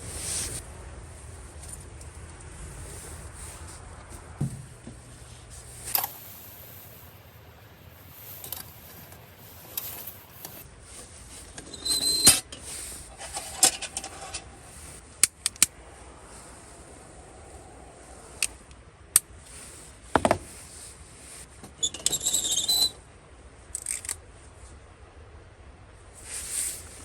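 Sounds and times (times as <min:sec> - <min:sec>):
small objects being handled: 0:03.3 - 0:11.7.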